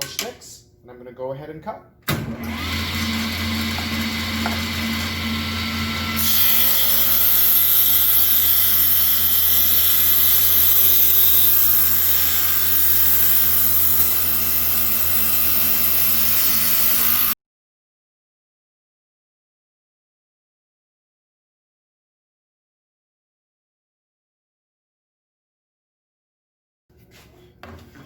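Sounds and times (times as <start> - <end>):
table saw motor hum: 2.4 - 17.4
saw blade ripping through board: 6.2 - 17.4.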